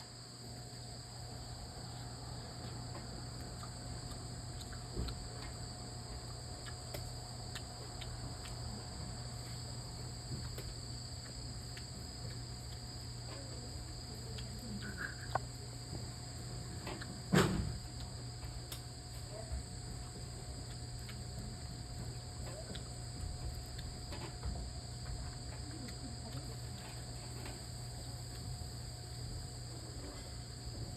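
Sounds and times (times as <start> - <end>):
crickets chirping: 0.0 - 30.9
steady low hum: 0.0 - 30.9.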